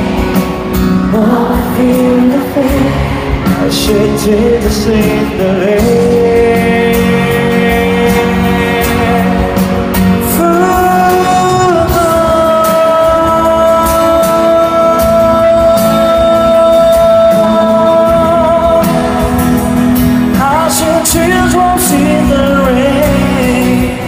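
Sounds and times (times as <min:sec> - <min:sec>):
live pop-rock band playing: 0:00.0 - 0:24.0.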